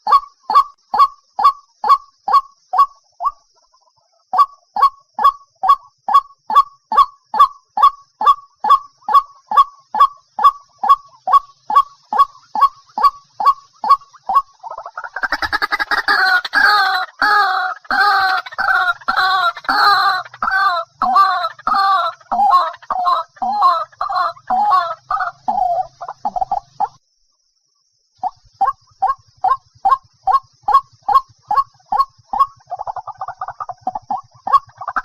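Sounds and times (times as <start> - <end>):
waterhen calling: 8.2 - 27.0, 28.2 - 35.0.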